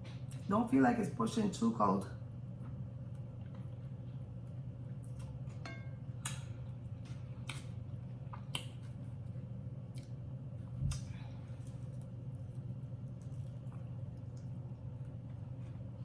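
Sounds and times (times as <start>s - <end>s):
wet lip smacks while eating: 8.3s - 8.9s.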